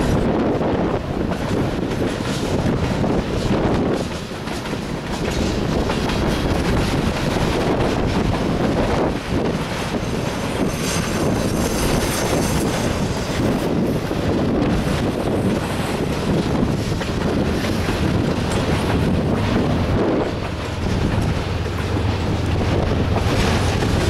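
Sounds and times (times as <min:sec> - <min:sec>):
freight train wheels clattering: 0:00.0 - 0:24.0.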